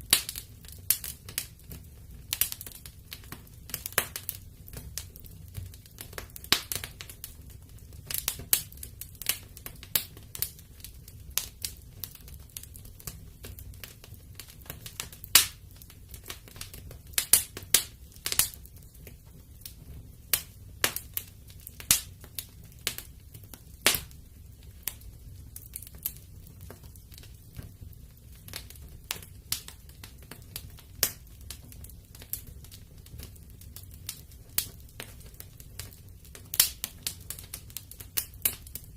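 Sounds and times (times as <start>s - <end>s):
low rumble of flames: 0.0s - 38.9s
wood fire crackling and popping: 0.0s - 38.9s.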